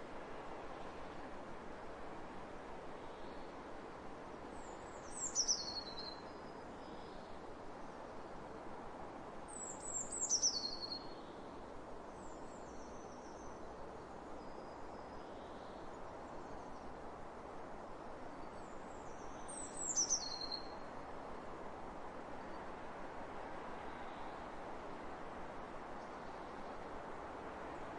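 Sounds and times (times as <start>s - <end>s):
open-air ambience hiss: 0.0s - 27.9s
songbird singing: 4.6s - 7.3s, 9.5s - 11.4s, 18.4s - 20.9s.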